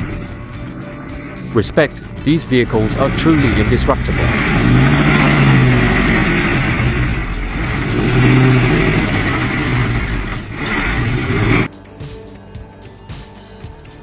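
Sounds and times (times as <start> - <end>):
rough noise: 0.0 - 11.7
vehicle engine revving hard: 0.0 - 11.7.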